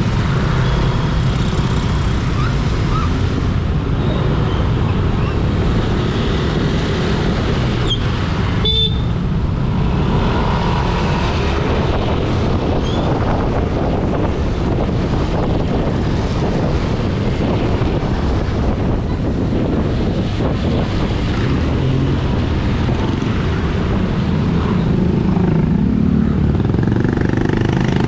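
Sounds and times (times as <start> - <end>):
road and traffic noise: 0.0 - 28.0
wind rumble on microphone: 0.0 - 28.0
vehicle horn beep: 8.6 - 9.1.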